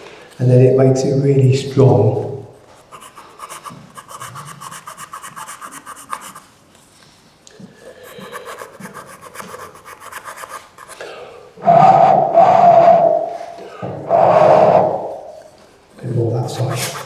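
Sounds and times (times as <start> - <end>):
rasp strokes on wood: 2.6 - 6.6, 7.8 - 11.0, 16.4 - 17.0.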